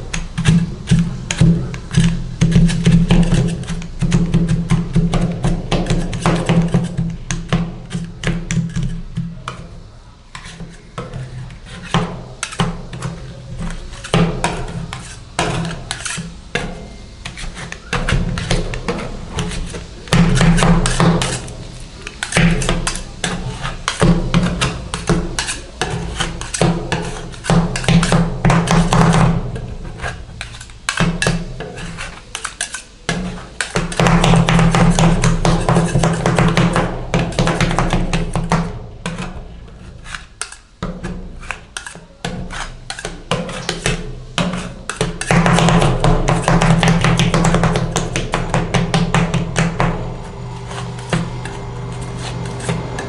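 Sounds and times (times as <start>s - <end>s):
metal spatulas chopping on plate: 0.0s - 9.7s, 10.4s - 53.0s
steady low hum: 47.4s - 53.0s.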